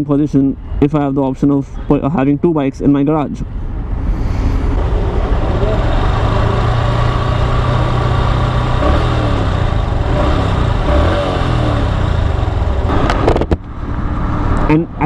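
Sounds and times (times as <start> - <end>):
road and traffic noise: 0.0 - 15.0
motorcycle engine running: 4.6 - 14.6.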